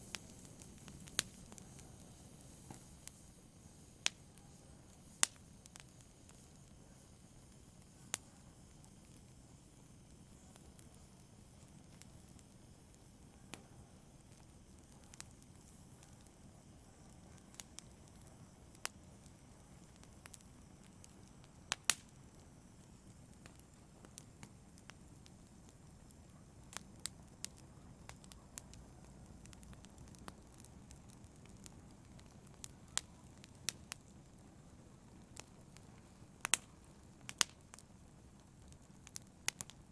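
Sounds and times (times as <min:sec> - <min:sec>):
campfire crackling and popping: 0:00.0 - 0:39.9
low rumble of burning: 0:00.0 - 0:39.9.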